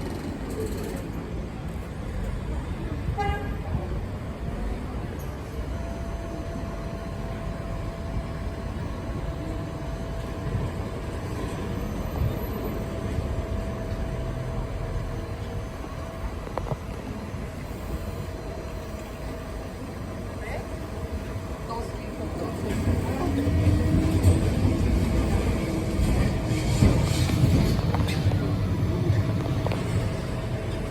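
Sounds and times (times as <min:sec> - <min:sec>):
tram wheels rumbling on rails: 0:00.0 - 0:30.9.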